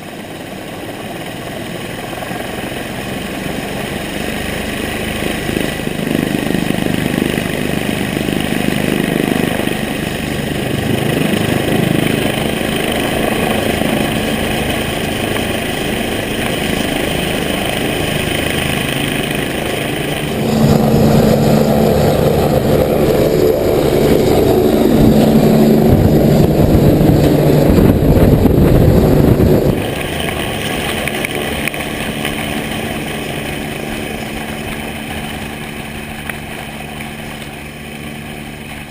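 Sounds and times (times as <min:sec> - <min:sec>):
engine running: 0:00.5 - 0:38.9
high steady tones: 0:17.2 - 0:28.3.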